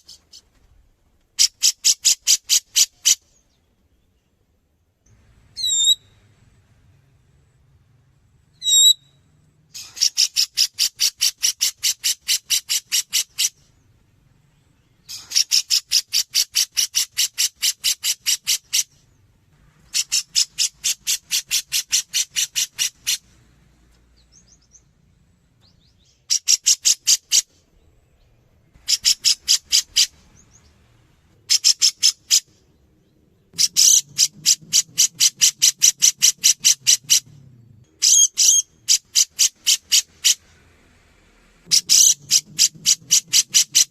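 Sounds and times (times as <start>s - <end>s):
bird calling rapid high notes: 41.6s - 43.9s.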